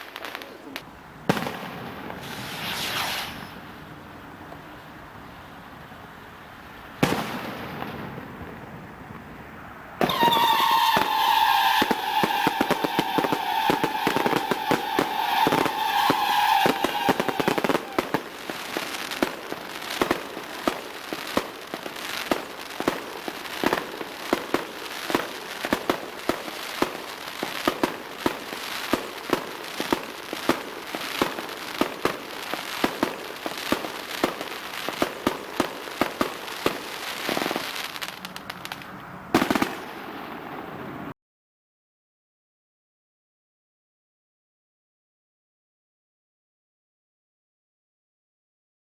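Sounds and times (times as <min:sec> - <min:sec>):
firework pops and bangs: 0:00.0 - 0:03.6, 0:07.0 - 0:40.8
firework whistle with crackling: 0:00.0 - 0:03.7, 0:10.0 - 0:41.0.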